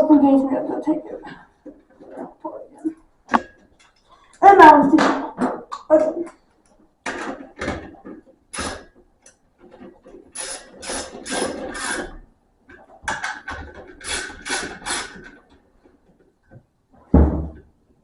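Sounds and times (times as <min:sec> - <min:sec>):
ratchet wrench clicking: 0:10.4 - 0:12.1, 0:14.0 - 0:15.2
heavy thump: 0:17.1 - 0:17.6.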